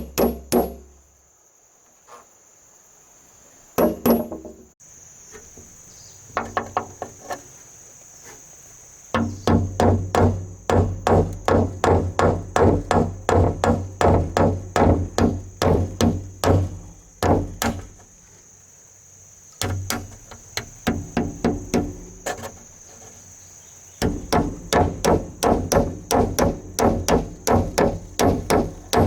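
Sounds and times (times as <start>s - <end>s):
hammer blows: 24.0s - 29.0s.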